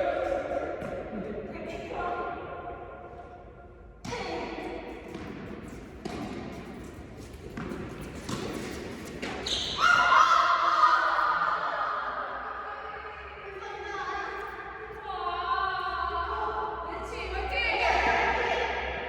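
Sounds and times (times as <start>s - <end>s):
tennis ball bouncing and struck: 5.1s - 9.5s
loud voices: 9.5s - 19.0s.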